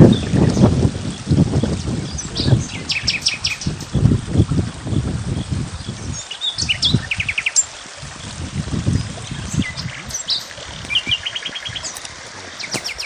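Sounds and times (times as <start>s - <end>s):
songbirds chirping: 0.0s - 4.1s, 4.9s - 13.0s
low rumbling gusts: 0.0s - 7.1s, 8.0s - 12.7s
bird trill: 12.6s - 13.0s.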